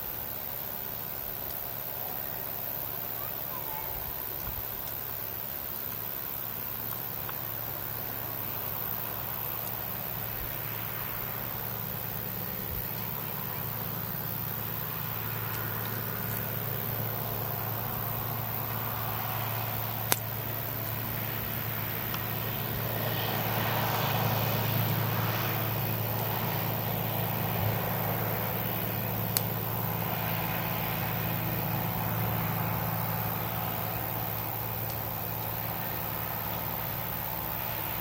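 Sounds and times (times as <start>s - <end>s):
campfire burning: 0.0s - 38.0s
low hum: 3.5s - 38.0s
wood popping: 20.1s - 20.3s.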